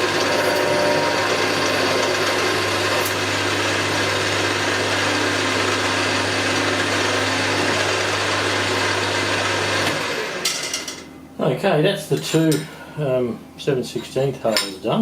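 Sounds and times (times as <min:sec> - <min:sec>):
milling machine drilling steel: 0:00.0 - 0:10.3.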